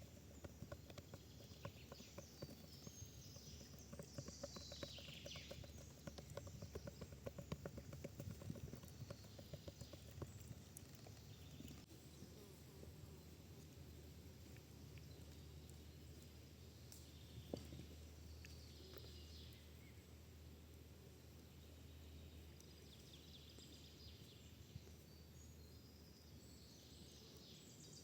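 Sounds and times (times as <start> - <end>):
rapid light knocks: 0.0 - 10.7.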